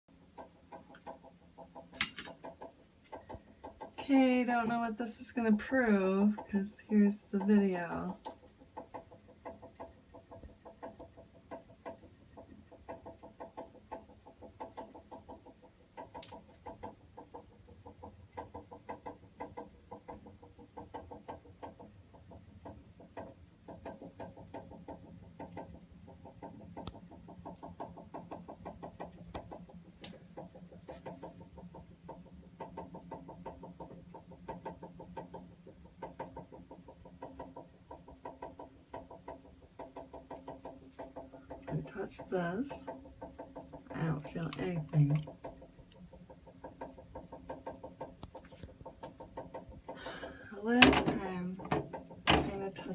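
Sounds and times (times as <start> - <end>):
low steady hum: 1.9 - 8.6, 40.8 - 46.6, 48.2 - 52.9
water heater pulsing chatter: 4.0 - 8.2, 43.9 - 45.4, 50.0 - 52.9.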